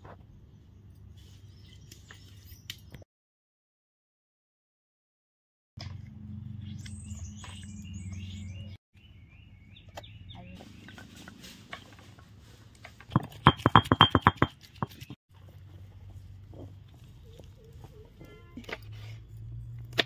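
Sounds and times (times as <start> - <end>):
small birds chirping: 0.2 - 3.0, 6.3 - 11.2.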